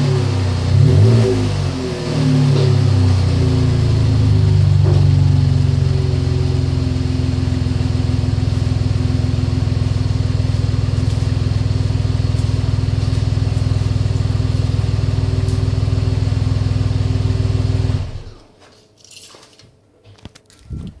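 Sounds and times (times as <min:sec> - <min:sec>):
engine idling with deep exhaust: 0:00.0 - 0:18.5
low thump: 0:04.7 - 0:05.4.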